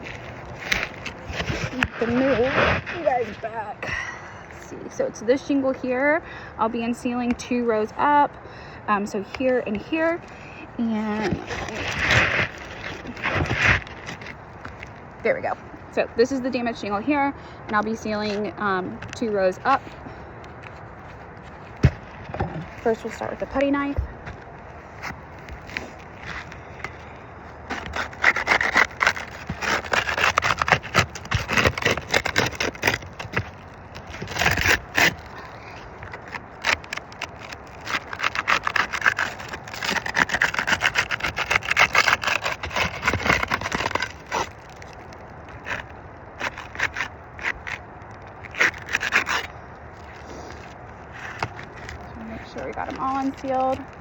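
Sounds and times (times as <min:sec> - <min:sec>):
putty knife scraping shingles: 0:00.0 - 0:03.4, 0:09.7 - 0:15.5, 0:20.6 - 0:47.8, 0:48.4 - 0:54.0.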